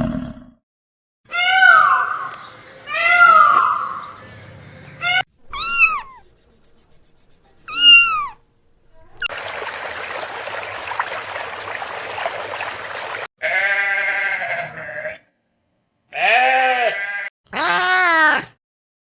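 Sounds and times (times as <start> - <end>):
cat meow: 1.3 - 3.8, 5.0 - 6.2, 7.7 - 8.4, 16.2 - 18.5
sheep bleating: 13.4 - 15.3, 16.1 - 18.1.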